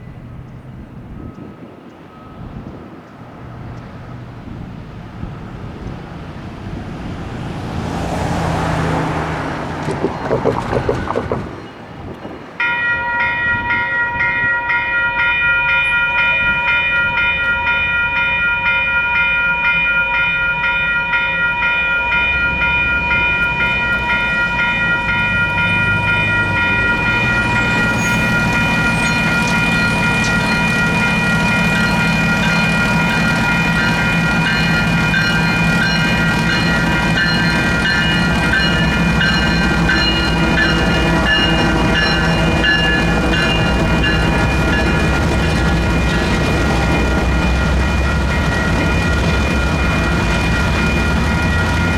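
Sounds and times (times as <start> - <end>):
railroad crossing warning bell: 0.0 - 51.9
vehicle passing: 5.2 - 11.9.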